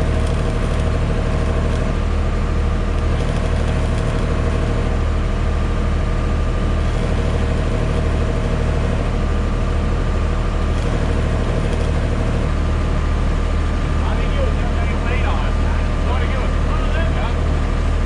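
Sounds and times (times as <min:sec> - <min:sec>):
engine running with deep hum: 0:00.0 - 0:18.0.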